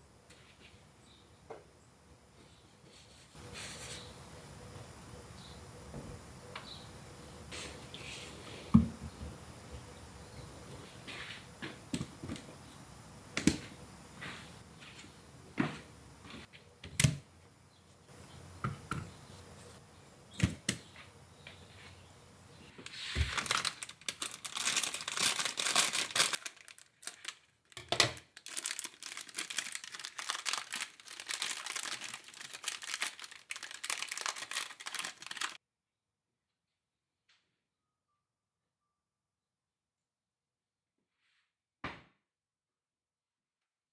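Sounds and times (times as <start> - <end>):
crackling and crinkling: 22.6 - 35.6.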